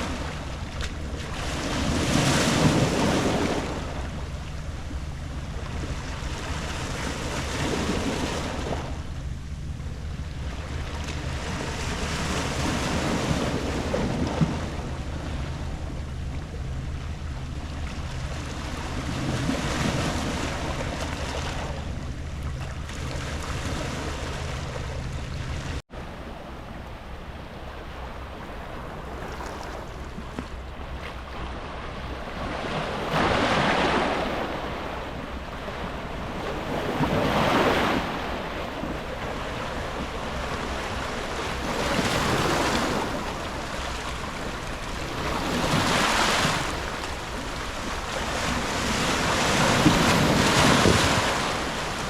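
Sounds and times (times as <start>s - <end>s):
waves on a pebble beach: 0.0s - 4.1s, 36.2s - 52.0s
low hum: 0.0s - 52.0s.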